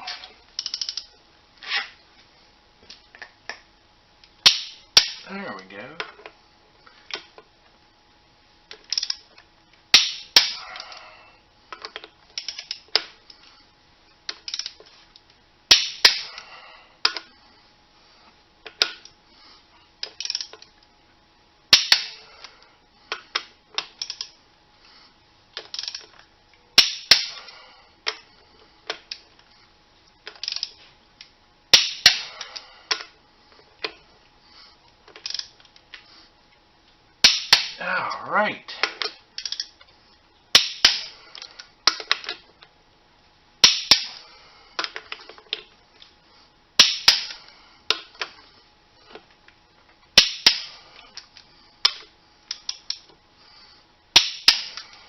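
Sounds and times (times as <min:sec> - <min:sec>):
metallic clicks and clanks: 0:00.1 - 0:01.1, 0:25.6 - 0:26.2.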